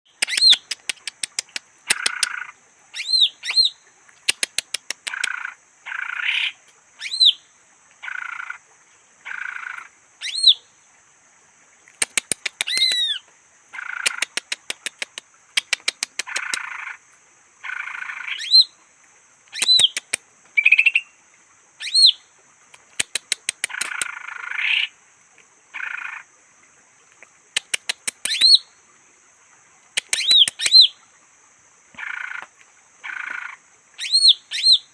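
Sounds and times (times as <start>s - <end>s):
bird calling with clicks and whistles: 0.1s - 2.4s, 12.0s - 13.2s, 19.5s - 21.0s, 27.6s - 28.6s, 30.0s - 30.9s
faint high hiss: 0.1s - 34.9s.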